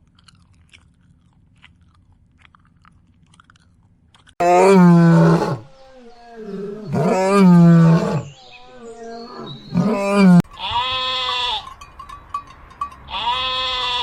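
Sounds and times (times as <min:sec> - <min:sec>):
animal wavering cries: 0:04.4 - 0:10.4.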